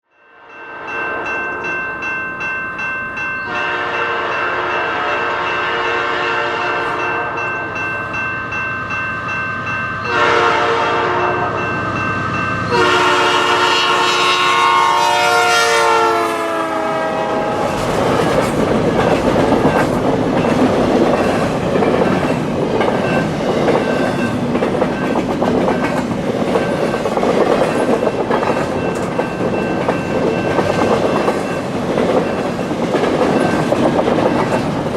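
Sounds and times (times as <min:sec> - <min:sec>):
level-crossing bells ringing: 0:00.1 - 0:10.6, 0:11.2 - 0:13.0, 0:27.9 - 0:34.9
train horn: 0:03.5 - 0:07.4, 0:10.1 - 0:11.7, 0:12.7 - 0:18.3
train wheels clattering on rails: 0:17.6 - 0:34.9.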